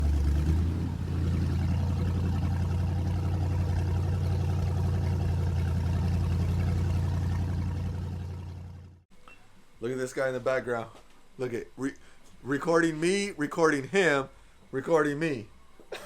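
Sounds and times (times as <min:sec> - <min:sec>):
engine low drone: 0:00.0 - 0:09.1.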